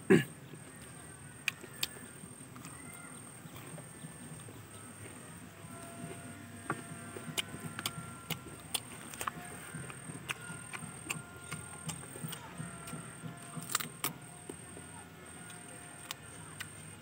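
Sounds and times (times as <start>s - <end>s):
chewing with mouth clicks: 6.8s - 14.6s.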